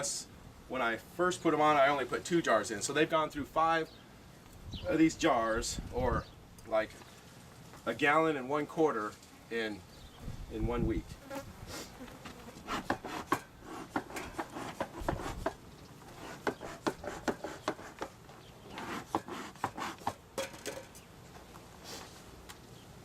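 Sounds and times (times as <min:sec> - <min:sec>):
wood rubbing and scraping: 0:12.0 - 0:20.2.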